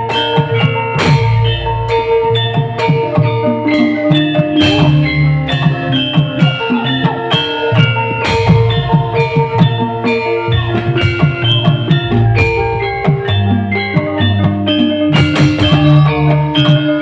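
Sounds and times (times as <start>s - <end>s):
drums: 0.0s - 17.0s
sustained melody notes: 0.0s - 17.0s
bass line: 4.5s - 6.8s, 7.8s - 16.6s.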